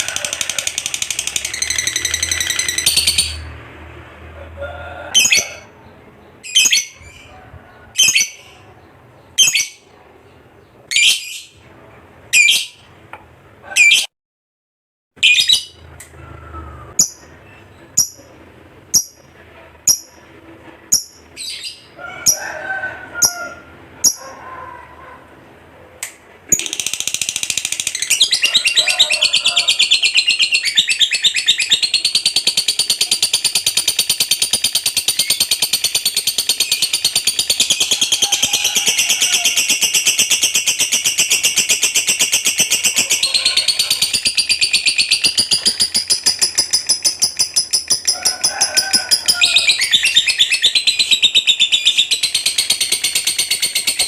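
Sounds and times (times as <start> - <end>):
rapid chattering bird trill: 0.0 - 3.4, 26.5 - 54.0
lovebird chirps: 16.9 - 18.3, 19.0 - 19.2, 24.0 - 24.2, 26.5 - 48.3.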